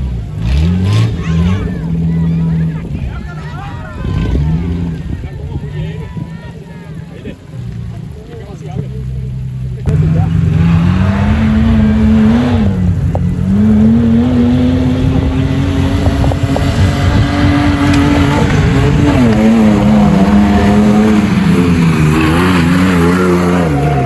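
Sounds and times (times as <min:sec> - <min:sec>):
engine revving at high revs: 0:00.0 - 0:02.9, 0:09.8 - 0:24.0.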